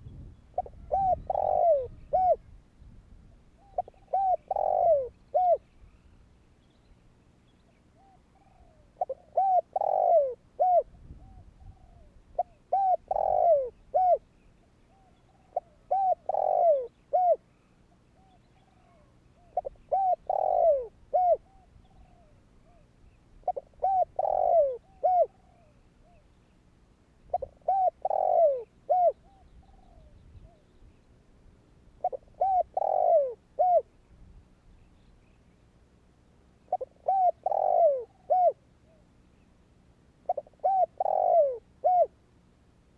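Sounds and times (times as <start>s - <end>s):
dove cooing: 0.0s - 2.6s, 3.3s - 5.7s, 8.0s - 14.3s, 14.9s - 26.3s, 27.3s - 30.8s, 32.0s - 34.0s, 36.6s - 39.1s, 40.2s - 42.2s.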